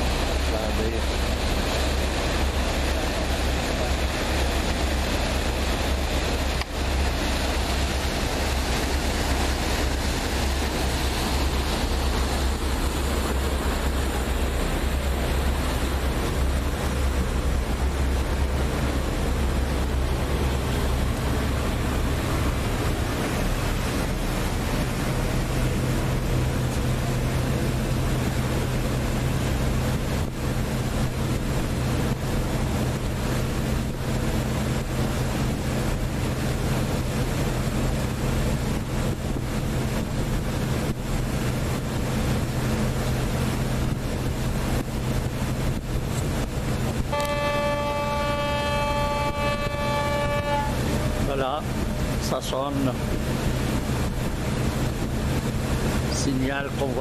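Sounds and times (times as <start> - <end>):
boat engine drone: 0.0 - 57.0
rushing water: 0.0 - 57.0
wind on microphone: 26.8 - 56.2
boat horn: 46.9 - 51.7.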